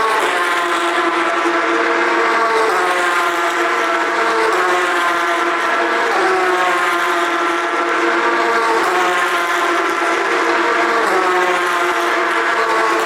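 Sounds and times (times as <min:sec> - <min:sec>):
race car engines at high revs: 0:00.0 - 0:13.0.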